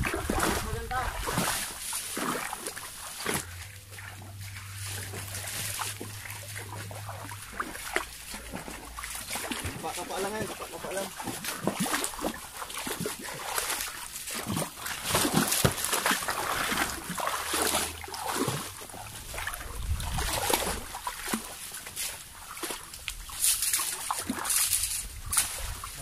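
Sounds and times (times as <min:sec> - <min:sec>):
squelching and splashing in mud: 0:00.0 - 0:26.0.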